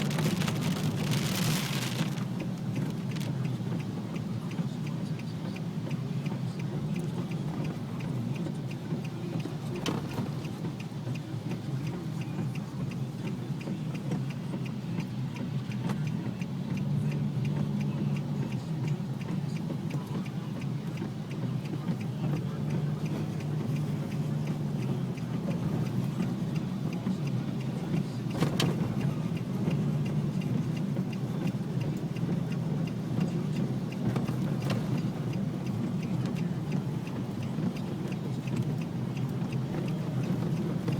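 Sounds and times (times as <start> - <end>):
fast faint ticking: 0.0 - 40.9
vehicle engine and road noise: 0.0 - 40.9.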